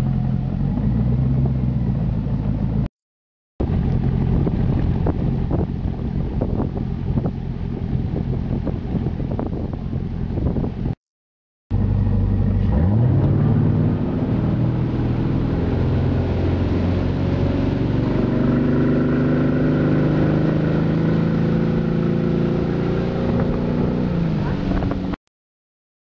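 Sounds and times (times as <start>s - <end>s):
boat engine revving: 3.6s - 11.0s, 11.7s - 25.2s.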